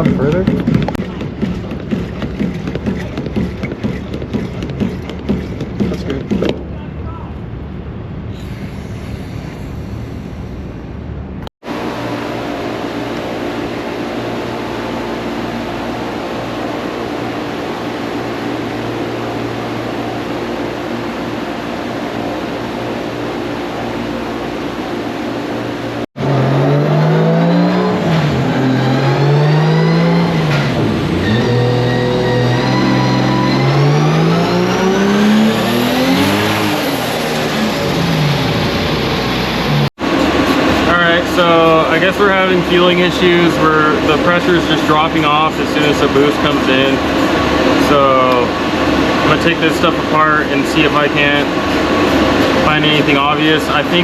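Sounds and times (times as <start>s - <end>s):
turbocharged car engine revving: 11.6s - 54.0s.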